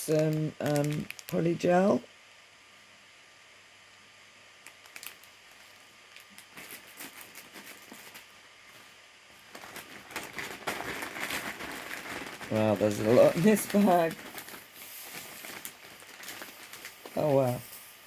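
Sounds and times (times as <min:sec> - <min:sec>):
plastic bag crinkling: 0:00.6 - 0:01.4, 0:04.6 - 0:18.0.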